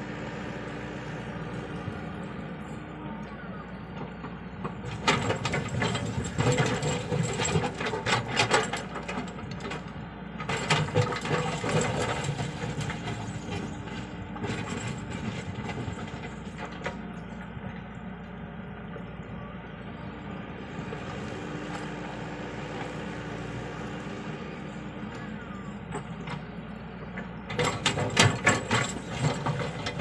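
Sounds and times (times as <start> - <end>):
excavator diesel engine: 0.0 - 30.0
metallic clanking and scraping: 4.6 - 17.0, 27.1 - 30.0.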